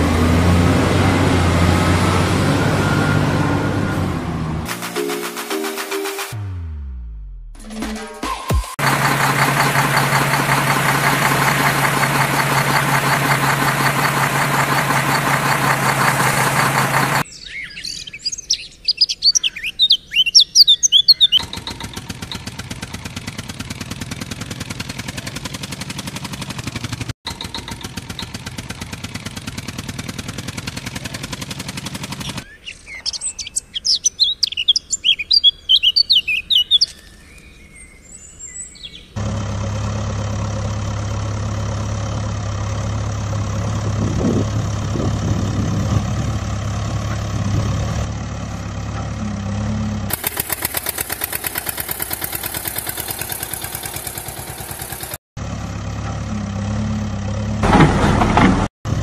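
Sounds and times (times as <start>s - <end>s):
engine hum: 0.0s - 7.9s, 8.5s - 19.8s, 20.6s - 59.0s
birds chirping: 8.8s - 23.0s, 27.3s - 28.6s, 30.8s - 39.2s.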